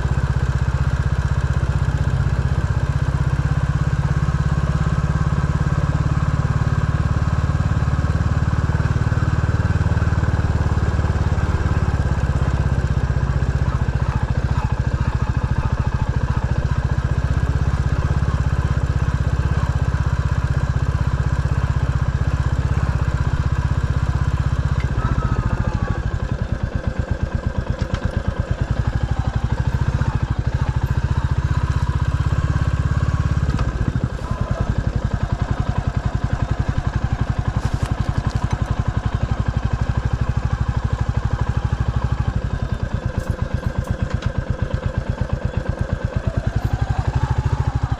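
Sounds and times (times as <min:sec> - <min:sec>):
vehicle engine running: 0:00.0 - 0:47.9.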